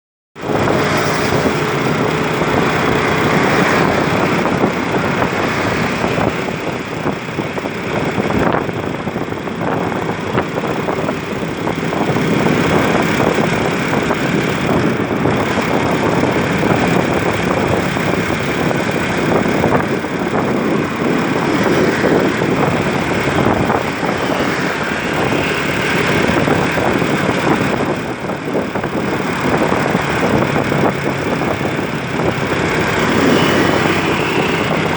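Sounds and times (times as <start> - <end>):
tanker truck diesel engine passing: 0.4 - 8.6, 28.9 - 34.9
traffic road noise: 0.4 - 34.9.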